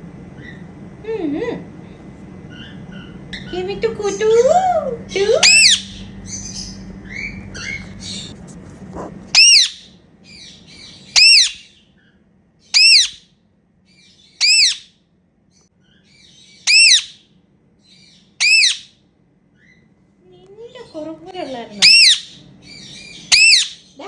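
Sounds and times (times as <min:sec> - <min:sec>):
parakeet high-pitched calls: 0:02.5 - 0:08.4, 0:09.3 - 0:13.3, 0:13.9 - 0:15.0, 0:15.8 - 0:19.9, 0:21.7 - 0:24.0
parakeet soft chattering: 0:02.5 - 0:08.4, 0:09.0 - 0:11.7, 0:12.8 - 0:13.2, 0:14.4 - 0:14.8, 0:16.4 - 0:17.1, 0:18.4 - 0:18.8, 0:21.8 - 0:24.0.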